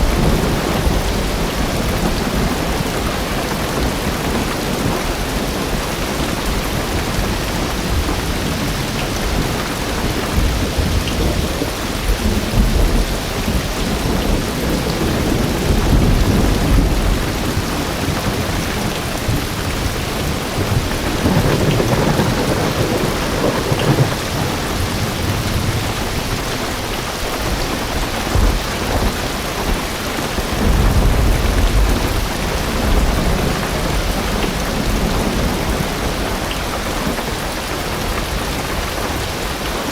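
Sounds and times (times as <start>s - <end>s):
thunder rumbling: 0.0s - 39.4s
heavy rain on a car roof: 0.0s - 39.9s.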